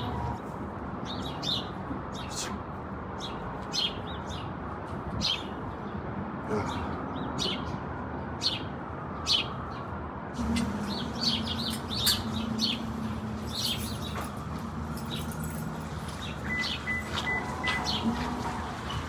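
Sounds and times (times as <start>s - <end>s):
city background hum: 0.0s - 19.0s
small birds chirping: 10.6s - 14.2s.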